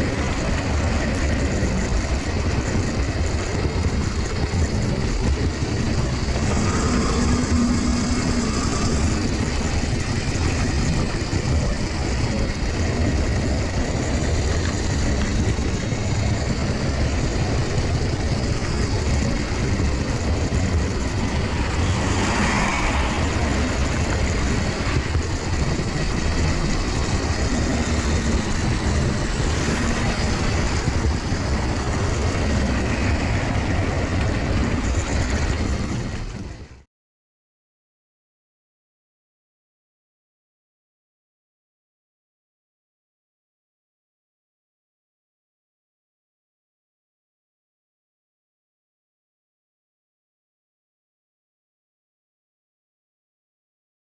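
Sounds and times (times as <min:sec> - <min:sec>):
model train running on track: 0:00.0 - 0:36.8.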